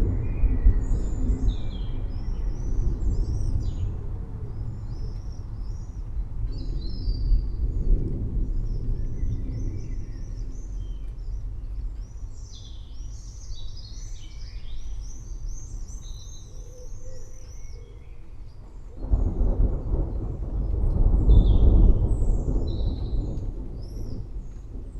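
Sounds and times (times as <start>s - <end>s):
thunder rumbling: 0.0s - 12.6s, 18.5s - 24.9s
birds chirping and singing: 0.1s - 8.0s, 8.6s - 24.6s.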